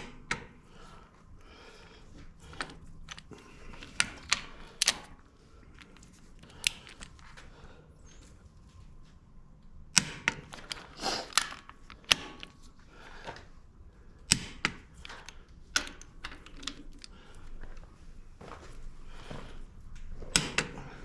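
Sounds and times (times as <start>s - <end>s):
metallic clicks of hand tools: 2.6s - 5.2s, 10.0s - 12.6s.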